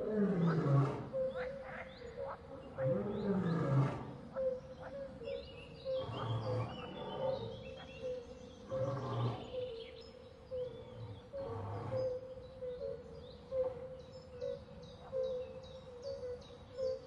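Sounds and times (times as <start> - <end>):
lion roaring: 0.0 - 1.2, 2.8 - 4.1, 5.9 - 7.6, 8.7 - 9.6, 10.9 - 12.1
birds whistling: 5.3 - 13.3.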